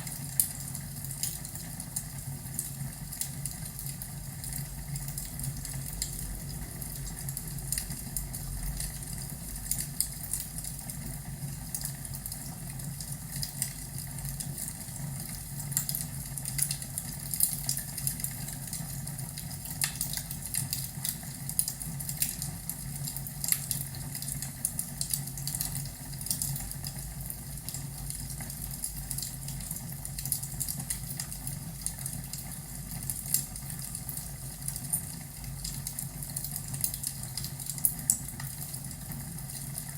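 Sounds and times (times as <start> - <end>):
fireplace crackling and popping: 15.6 - 39.9.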